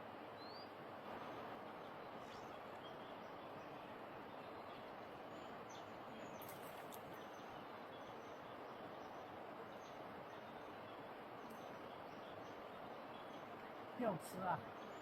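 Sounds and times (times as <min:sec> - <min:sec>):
stream water rushing: 0:00.0 - 0:15.0
bird chirps: 0:00.4 - 0:00.7.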